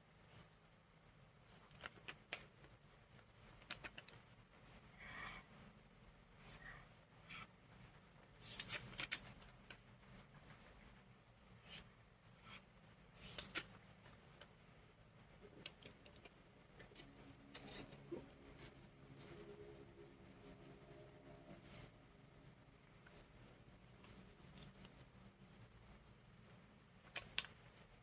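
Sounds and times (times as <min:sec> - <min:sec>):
low steady hum: 0:00.0 - 0:28.0
paper crackling and rustling: 0:08.4 - 0:09.8, 0:13.1 - 0:14.2.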